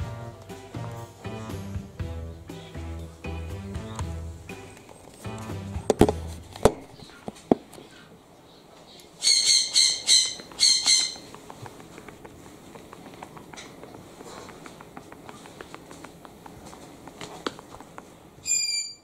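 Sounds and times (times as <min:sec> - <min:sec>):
parrot squawking: 0:09.2 - 0:11.3.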